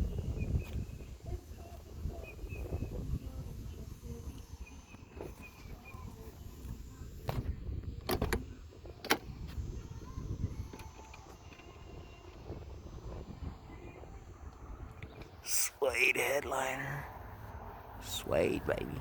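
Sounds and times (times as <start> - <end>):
faint bird chirps: 0.0 - 6.5.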